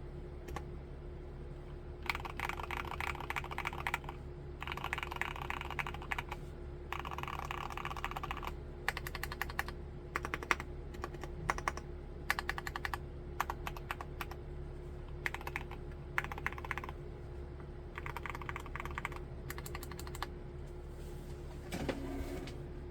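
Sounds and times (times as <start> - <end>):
faint steady hum: 0.0 - 22.9
typing on mechanical keyboard: 2.0 - 14.4, 15.2 - 17.0, 18.0 - 20.3.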